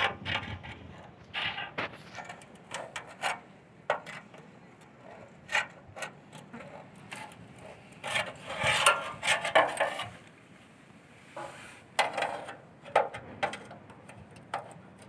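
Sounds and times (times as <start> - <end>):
scraping and rubbing: 5.0 - 10.2, 11.3 - 13.6.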